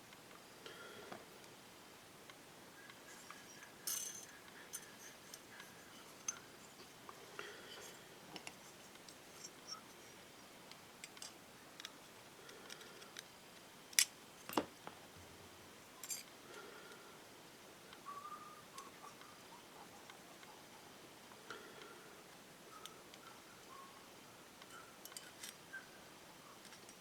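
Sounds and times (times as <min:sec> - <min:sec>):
small metal parts clinking: 0:03.1 - 0:06.9, 0:16.0 - 0:16.3.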